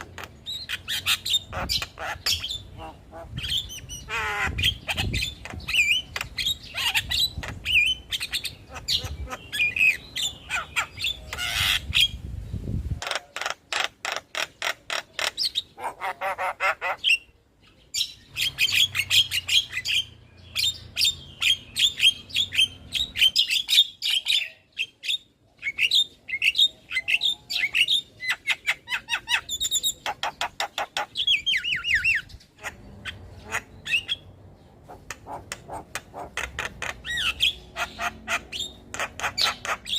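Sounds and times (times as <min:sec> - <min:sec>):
myna harsh squawks and chatter: 0:13.0 - 0:17.2.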